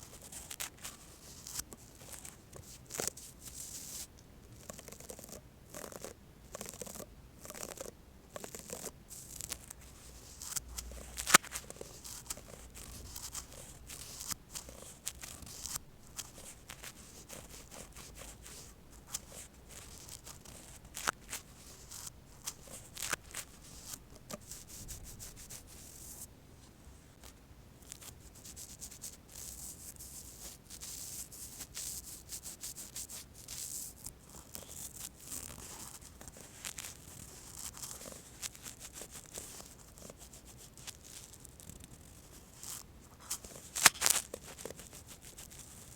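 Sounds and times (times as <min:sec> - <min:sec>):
brush bristles scratching: 0:00.0 - 0:26.2, 0:27.9 - 0:45.9.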